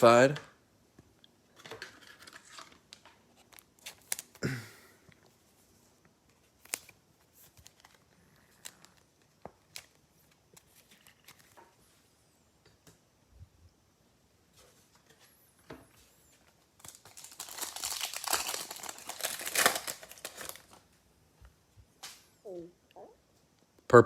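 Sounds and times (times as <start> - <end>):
handling trading cards: 1.6 - 4.5, 6.2 - 11.8, 16.0 - 20.9.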